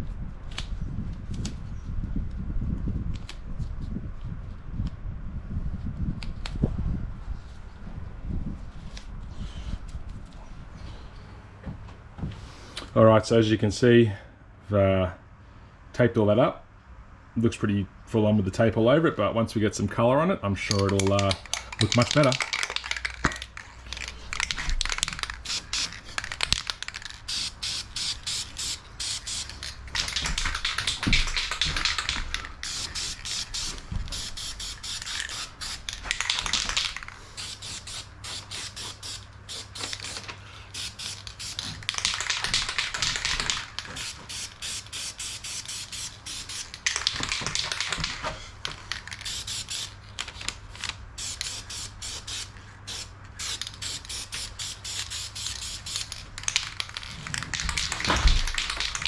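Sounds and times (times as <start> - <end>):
rapid sharp clicks: 20.7 - 27.5, 29.3 - 37.2, 41.0 - 44.2, 44.8 - 49.4, 53.5 - 59.0
spray can hissing: 20.8 - 48.2, 48.9 - 50.0, 51.2 - 59.0.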